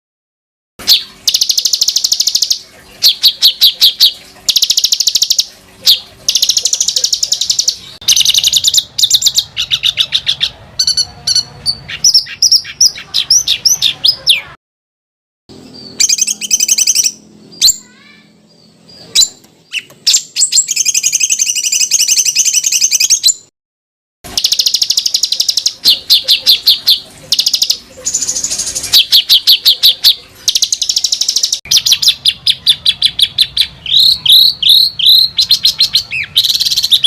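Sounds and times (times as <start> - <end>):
songbirds trilling and chattering: 0.8 - 14.6, 15.5 - 23.5, 24.3 - 37.0.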